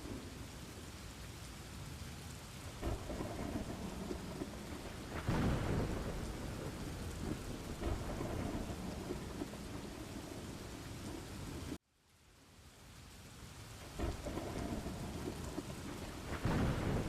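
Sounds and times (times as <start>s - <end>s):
thunder rumbling: 0.0s - 1.0s, 2.4s - 11.8s, 13.8s - 17.0s
steady rain: 0.0s - 17.0s.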